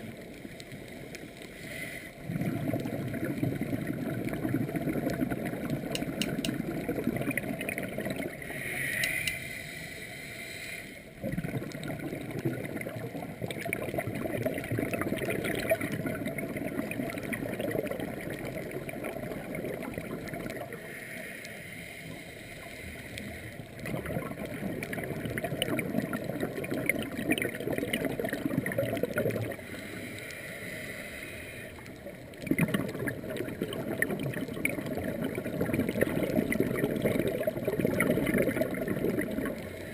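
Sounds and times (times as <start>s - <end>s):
hissing regulator inhale: 1.5s - 2.2s, 8.4s - 11.1s, 20.8s - 23.6s, 29.6s - 31.8s
gurgling exhaled bubbles: 2.2s - 8.7s, 11.2s - 20.8s, 23.5s - 30.0s, 31.8s - 39.9s.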